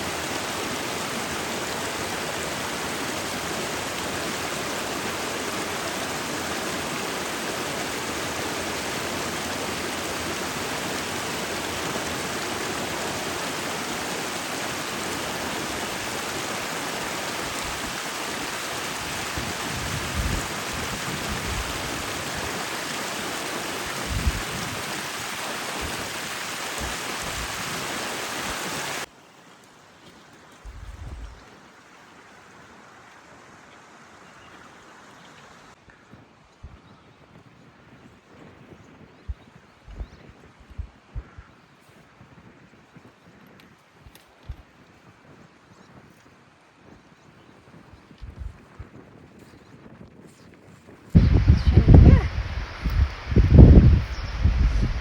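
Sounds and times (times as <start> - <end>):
rushing water hiss: 0.0 - 35.8, 51.2 - 55.0.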